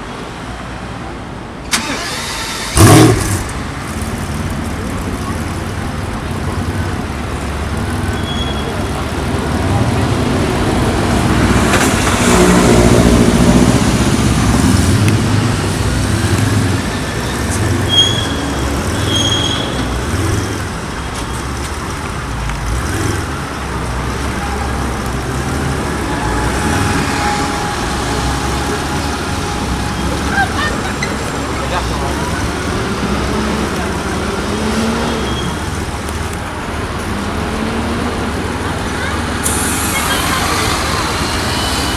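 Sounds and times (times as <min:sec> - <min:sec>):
city street traffic: 0:00.0 - 0:41.9
car engine passing: 0:01.7 - 0:05.3.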